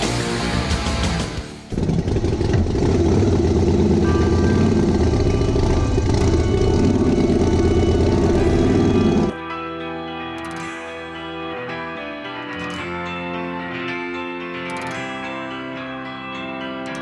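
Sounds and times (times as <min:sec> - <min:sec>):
music: 0:00.0 - 0:01.8, 0:03.8 - 0:17.0
motorcycle engine running: 0:01.7 - 0:09.3.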